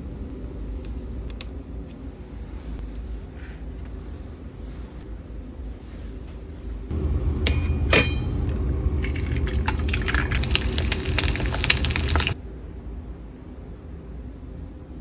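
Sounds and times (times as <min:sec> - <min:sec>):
steady low hum: 0:06.7 - 0:12.4
dishes and cutlery clinking: 0:06.9 - 0:12.4.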